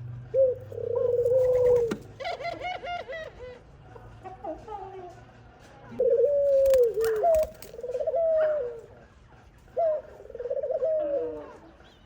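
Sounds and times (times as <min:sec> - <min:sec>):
doves calling: 0:00.4 - 0:02.8, 0:06.0 - 0:08.9.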